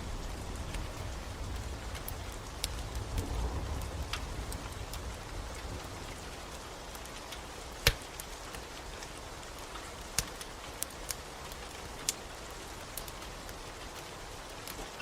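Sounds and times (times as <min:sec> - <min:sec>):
wood fire crackling pops: 0:00.0 - 0:06.2, 0:06.9 - 0:15.0
steady rain: 0:00.0 - 0:15.0.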